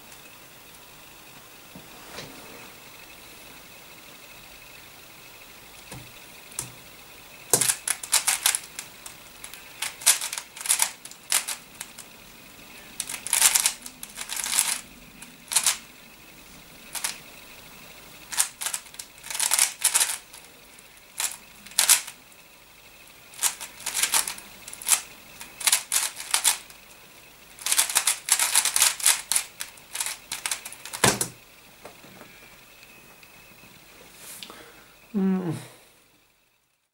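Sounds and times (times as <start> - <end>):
puzzle cube clicking: 7.5 - 12.0, 13.0 - 14.9, 15.5 - 15.8, 16.9 - 17.2, 18.3 - 20.4, 21.2 - 22.1, 23.4 - 26.7, 27.6 - 31.3.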